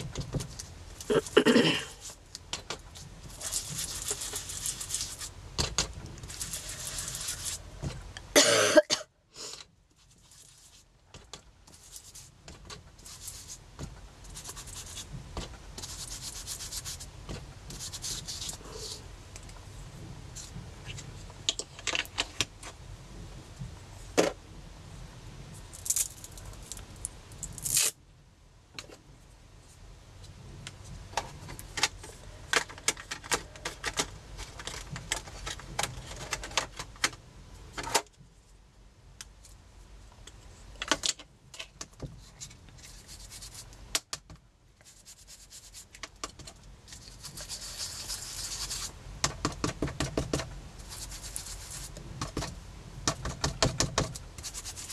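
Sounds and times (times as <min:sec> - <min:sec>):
rubbing and quick tapping: 0:00.0 - 0:07.6, 0:10.0 - 0:19.0, 0:42.1 - 0:54.9.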